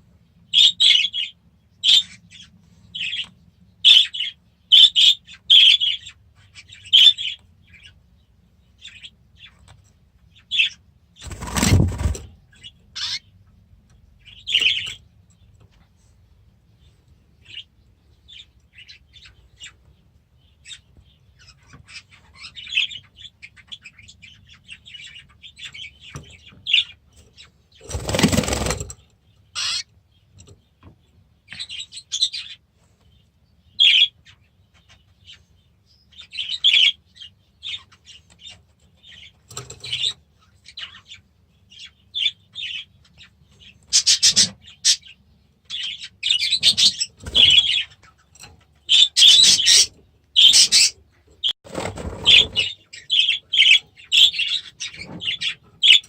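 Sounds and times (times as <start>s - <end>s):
caged birds chirping: 0.0s - 56.0s
wings flapping: 11.2s - 12.3s, 27.9s - 28.9s, 51.7s - 52.6s.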